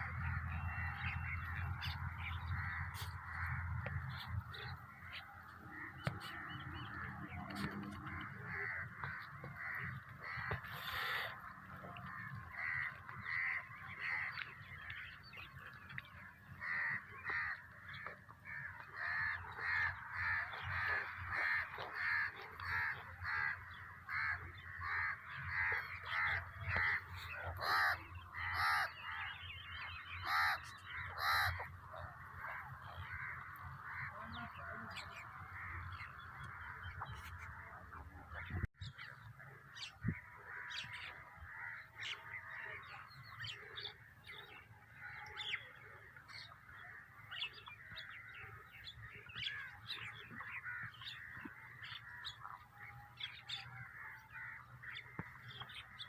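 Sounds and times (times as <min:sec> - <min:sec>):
crows cawing: 0:16.6 - 0:29.2, 0:30.2 - 0:31.7
other bird calls: 0:16.6 - 0:37.7.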